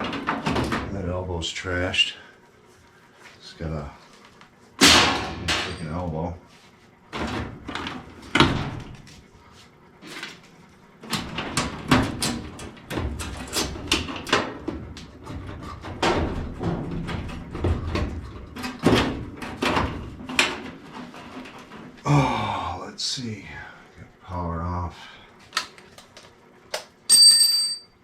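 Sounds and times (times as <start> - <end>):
metal tools knocking and clanking: 4.8 - 5.9.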